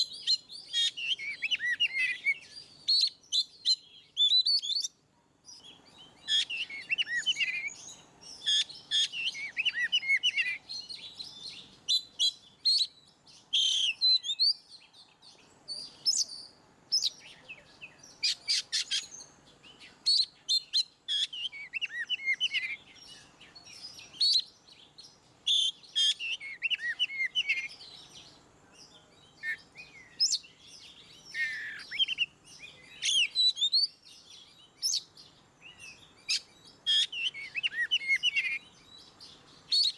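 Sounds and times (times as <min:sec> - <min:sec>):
bird singing whistled phrases: 0:00.0 - 0:05.0, 0:05.6 - 0:14.8, 0:15.7 - 0:24.9, 0:25.5 - 0:28.3, 0:29.2 - 0:39.9.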